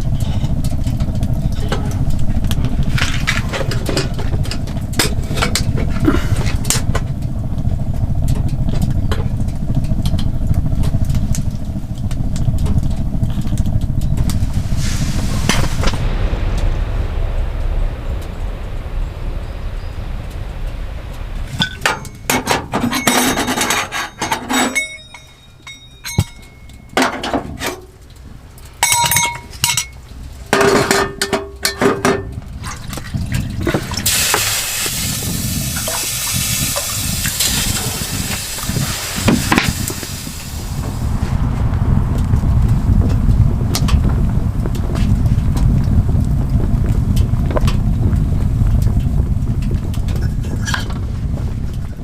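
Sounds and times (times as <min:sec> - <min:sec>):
steady hiss: 0:00.0 - 0:52.0
camp gear clinking and knocking: 0:21.6 - 0:27.8, 0:28.8 - 0:30.0.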